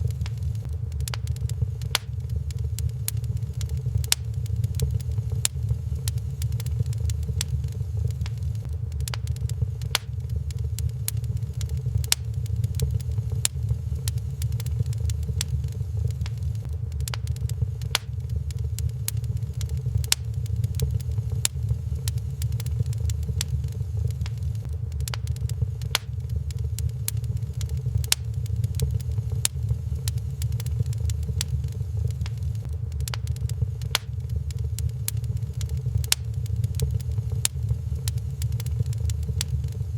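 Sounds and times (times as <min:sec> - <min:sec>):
low fire rumble: 0:00.0 - 0:39.9
sharp pops and snaps: 0:00.0 - 0:39.9
wood fire crackling: 0:00.0 - 0:39.9.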